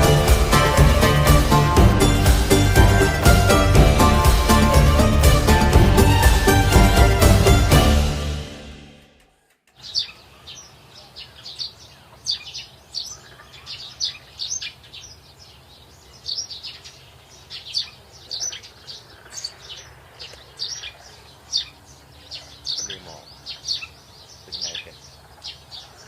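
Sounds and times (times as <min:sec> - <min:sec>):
background music: 0:00.0 - 0:09.3
small birds chirping: 0:09.4 - 0:26.0.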